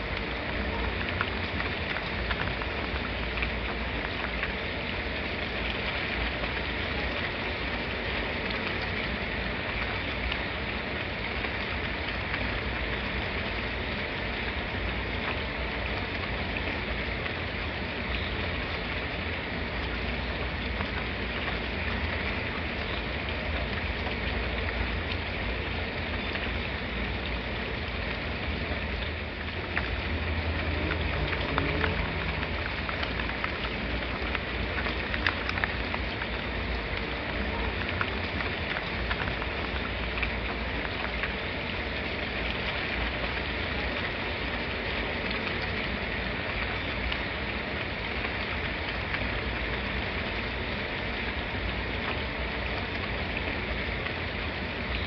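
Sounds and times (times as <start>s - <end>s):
steady rainfall: 0.0s - 55.0s
drops ticking on a surface: 28.9s - 41.4s.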